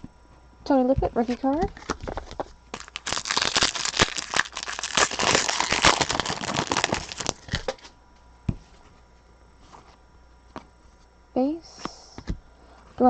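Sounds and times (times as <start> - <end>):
plastic packaging crinkling: 1.2 - 7.9.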